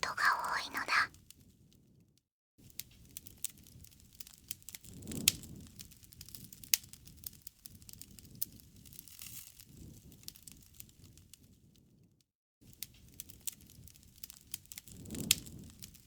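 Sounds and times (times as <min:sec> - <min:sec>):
soft rustle of flames: 0:02.8 - 0:12.0, 0:12.7 - 0:16.0.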